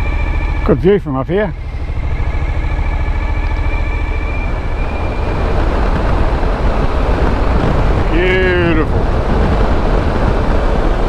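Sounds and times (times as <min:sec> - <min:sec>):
faint high whine: 0:00.0 - 0:10.6
motorcycle engine drone: 0:00.0 - 0:11.0
wind rush on microphone: 0:00.0 - 0:11.0.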